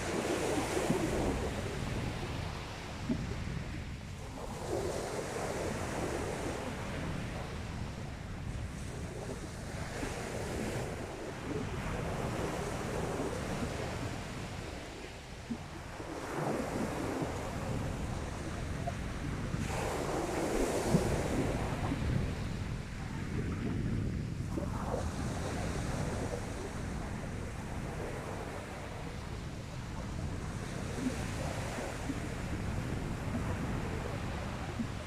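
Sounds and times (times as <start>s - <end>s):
wind buffeting microphone: 0.0s - 35.0s
sea waves breaking: 10.8s - 35.0s.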